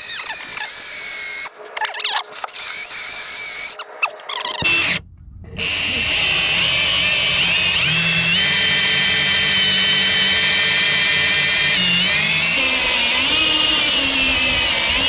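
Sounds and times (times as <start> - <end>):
electric drill boring through wood: 0.0 - 15.0.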